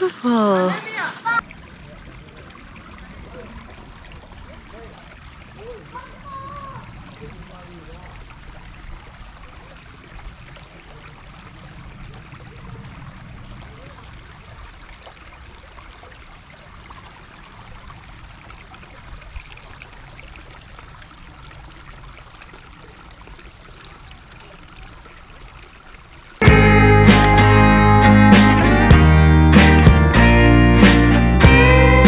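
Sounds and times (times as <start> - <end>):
creek water trickling: 0.5 - 31.8.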